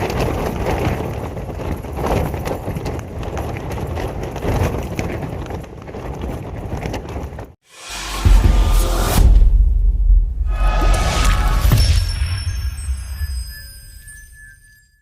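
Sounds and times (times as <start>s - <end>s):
gusting wind: 0.0s - 7.6s
tent fabric flapping and knocking: 0.0s - 7.6s.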